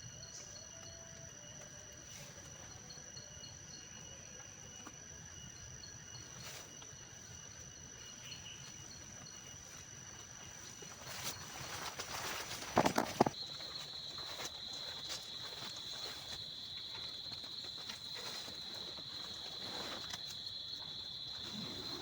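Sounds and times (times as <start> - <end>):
high-pitched insect calls: 0.0 - 22.0
trilling pulsing insect tone: 0.0 - 22.0
rustling noise: 10.4 - 22.0.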